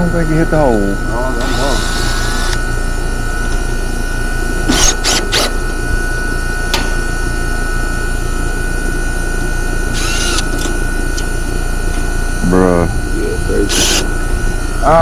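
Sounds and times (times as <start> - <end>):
machine hum with high whine: 0.0 - 15.0
short rasping bursts: 13.7 - 14.1.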